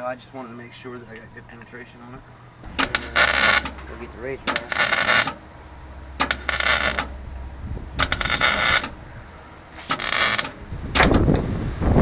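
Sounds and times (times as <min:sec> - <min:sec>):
welding sizzle: 0:02.6 - 0:09.0, 0:09.7 - 0:11.2
wind rumble on microphone: 0:07.1 - 0:09.5, 0:10.6 - 0:12.0.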